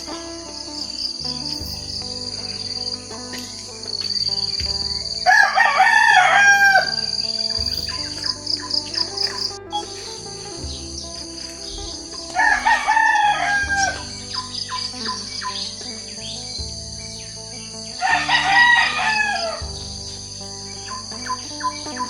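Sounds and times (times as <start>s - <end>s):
small birds chirping and trilling: 0.0s - 22.0s
rooster crowing: 5.2s - 7.2s, 12.4s - 14.1s, 18.0s - 19.6s.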